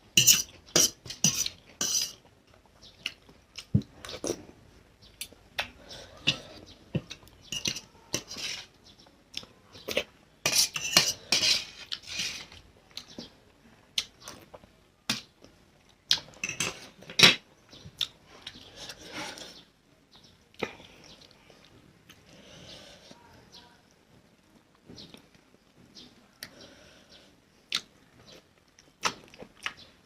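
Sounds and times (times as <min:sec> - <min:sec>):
cutlery clinking on a plate: 0:00.2 - 0:02.1, 0:07.5 - 0:08.4, 0:10.5 - 0:11.7, 0:16.4 - 0:17.4
mouth noises of eating: 0:20.4 - 0:30.0.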